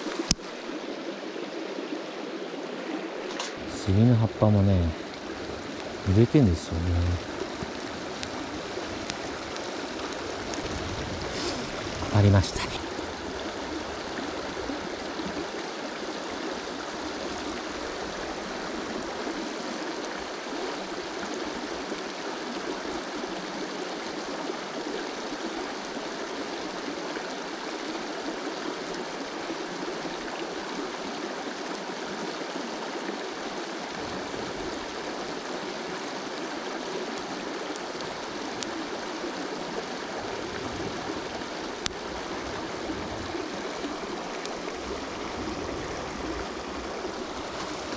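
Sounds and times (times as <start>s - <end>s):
river flowing over stones: 0.0s - 47.9s.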